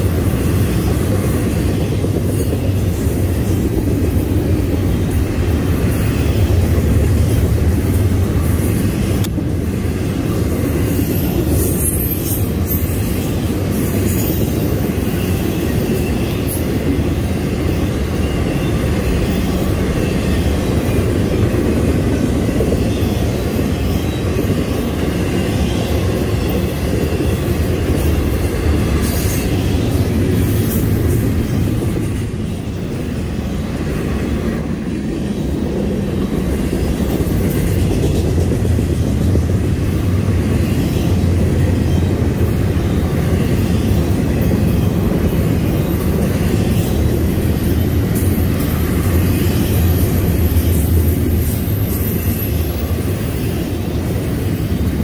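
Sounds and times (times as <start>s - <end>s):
freight train wheels rumbling: 0.0s - 55.0s
high wheel squeals: 10.8s - 16.6s.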